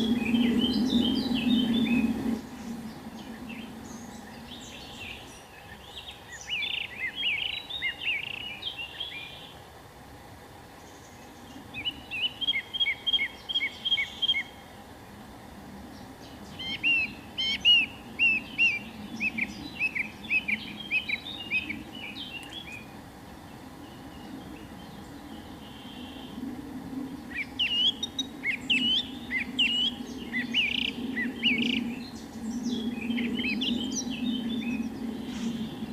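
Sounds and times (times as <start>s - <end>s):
songbird chirping: 0.0s - 9.7s, 10.7s - 35.9s
low outdoor hiss: 0.0s - 35.9s.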